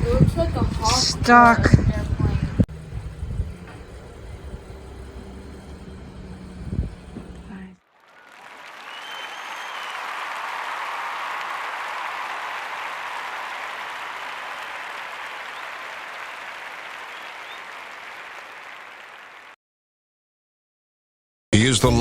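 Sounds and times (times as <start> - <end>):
crowd applause: 4.6 - 19.6.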